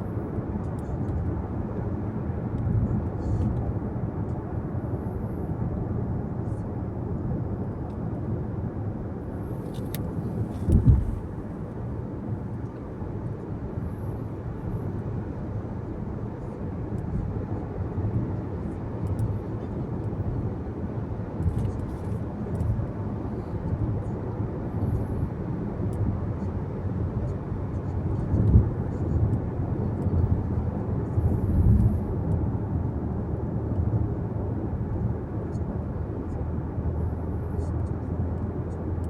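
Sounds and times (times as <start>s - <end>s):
car cabin road noise: 8.9s - 13.2s
thump: 10.7s - 11.2s.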